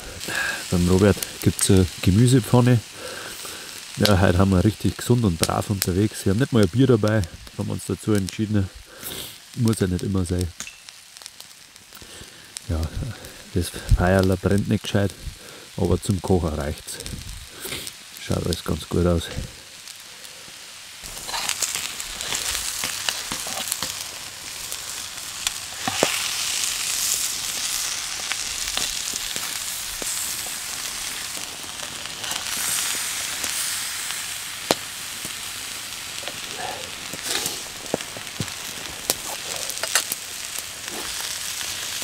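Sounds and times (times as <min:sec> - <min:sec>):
food sizzling in a frying pan: 0:00.0 - 0:42.0.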